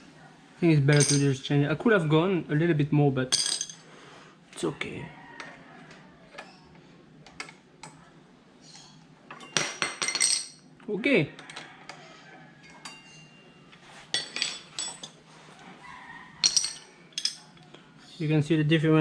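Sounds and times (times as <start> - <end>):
small metal parts clinking: 0.9 - 1.3, 9.3 - 10.6, 14.2 - 15.2, 16.4 - 17.6.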